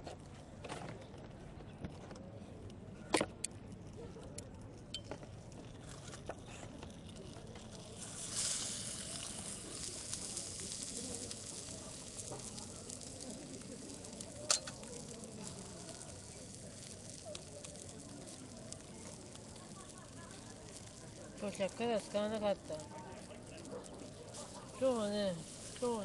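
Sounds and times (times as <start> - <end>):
fire crackling: 0.2 - 26.0
fire hissing: 5.8 - 26.0.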